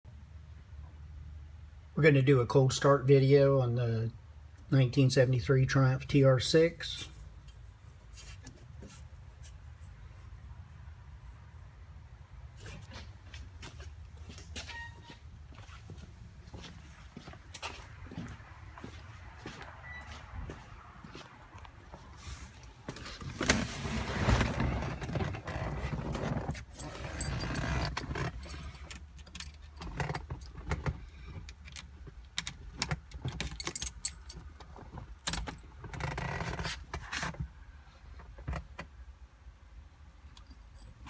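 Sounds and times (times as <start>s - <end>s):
rustling handling noise: 6.8s - 11.7s, 21.8s - 28.9s
keys jangling: 26.6s - 29.6s, 33.4s - 34.5s.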